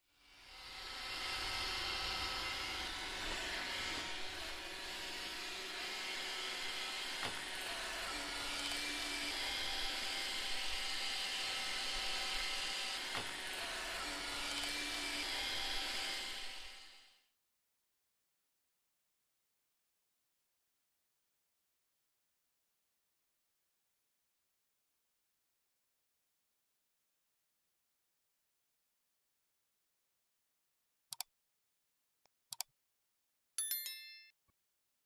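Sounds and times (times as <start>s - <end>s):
power tool whirring: 0.4s - 17.2s.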